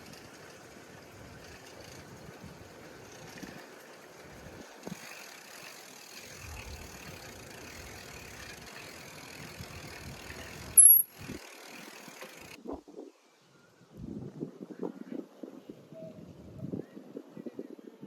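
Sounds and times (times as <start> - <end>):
wind rumbling on microphone: 0.0 - 5.0, 12.6 - 18.0
wind and road noise: 0.0 - 18.0.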